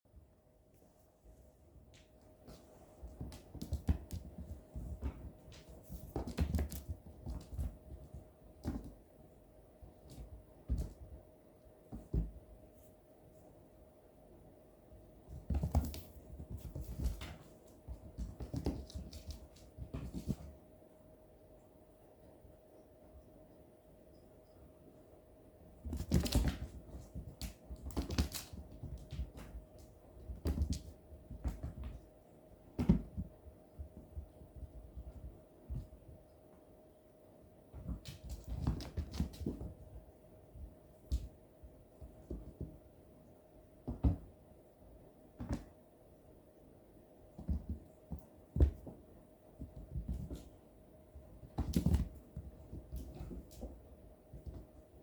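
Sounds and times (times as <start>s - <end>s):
faint steady hum: 0.1s - 55.0s
kittens scrambling and pouncing: 1.9s - 12.9s, 15.1s - 20.7s, 25.6s - 36.7s, 37.6s - 43.0s, 47.3s - 55.0s.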